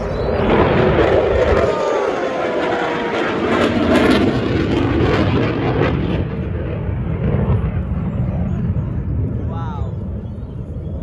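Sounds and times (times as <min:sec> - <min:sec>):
jet plane flying past: 0:00.0 - 0:11.0.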